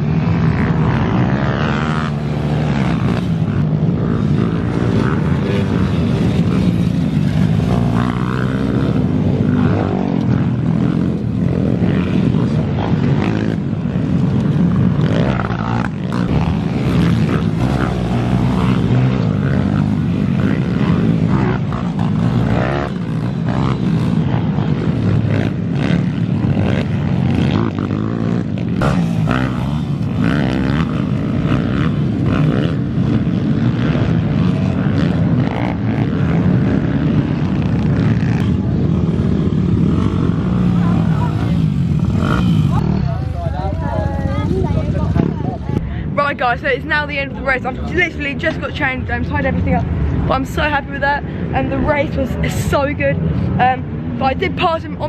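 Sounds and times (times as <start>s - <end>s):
minibike engines buzzing: 0.0s - 55.0s.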